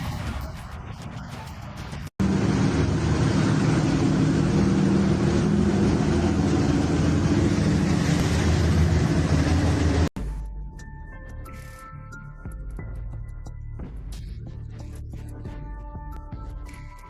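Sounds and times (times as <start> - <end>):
boat engine droning: 2.2 - 10.1
loud rushing noise: 2.2 - 10.1.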